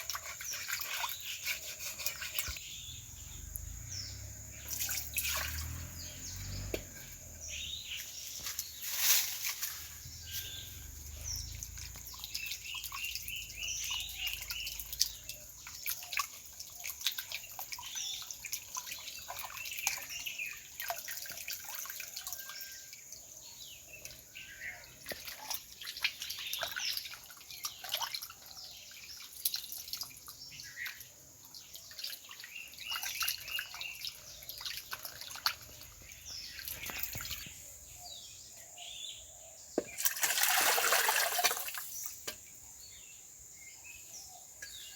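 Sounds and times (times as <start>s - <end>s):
birds chirping: 0.0s - 15.6s, 30.4s - 44.9s
small clicks and drips: 11.2s - 37.6s.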